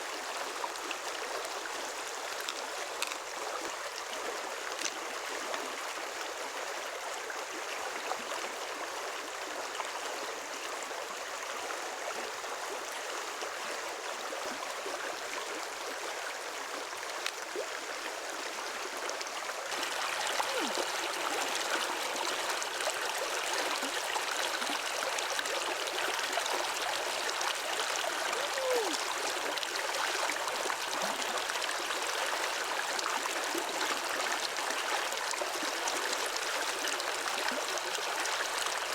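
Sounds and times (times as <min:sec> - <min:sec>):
water gurgles: 0:00.0 - 0:38.9
stream water rushing: 0:16.0 - 0:38.9.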